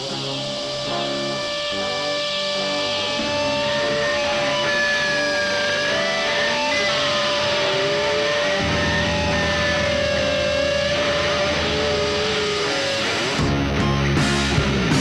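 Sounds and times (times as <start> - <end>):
electric guitar music: 0.0 - 15.0.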